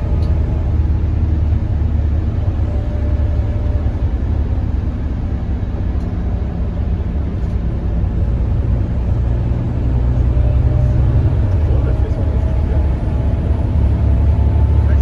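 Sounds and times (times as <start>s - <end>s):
bus diesel engine rumbling: 0.0s - 15.0s
road noise: 0.0s - 15.0s.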